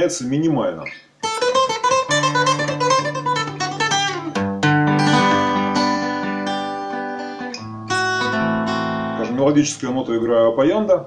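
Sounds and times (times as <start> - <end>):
fingerstyle guitar: 0.8 - 11.0.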